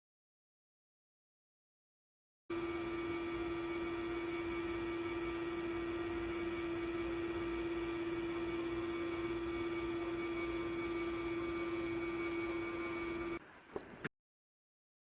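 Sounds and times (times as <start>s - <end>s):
electrical hum: 2.5s - 14.1s.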